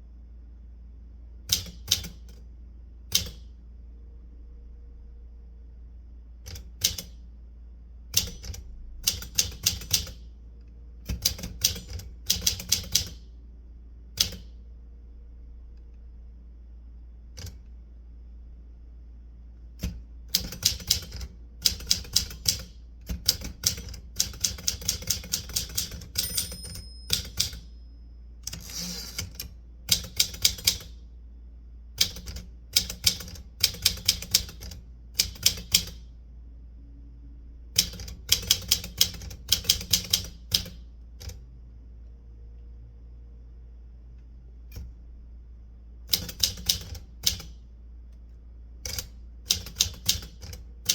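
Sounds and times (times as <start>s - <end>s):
typewriter keys clicking: 1.5s - 2.4s, 3.1s - 3.4s, 6.5s - 7.2s, 8.2s - 10.2s, 11.1s - 13.2s, 14.2s - 14.5s, 19.8s - 27.6s, 28.5s - 30.9s, 32.0s - 36.0s, 37.8s - 41.4s, 46.1s - 47.6s, 48.9s - 50.9s
short ringing tone: 26.2s - 28.4s.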